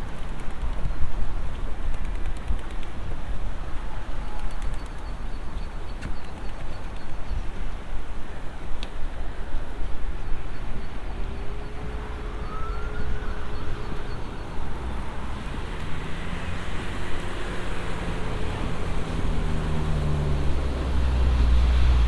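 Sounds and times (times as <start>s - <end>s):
road traffic rumble: 2.9s - 22.0s
faint rising and falling tones: 10.7s - 22.0s.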